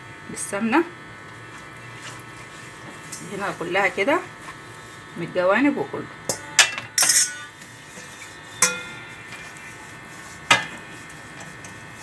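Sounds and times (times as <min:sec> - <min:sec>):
utensils clinking on baking tray: 0:06.3 - 0:09.6, 0:10.5 - 0:10.8.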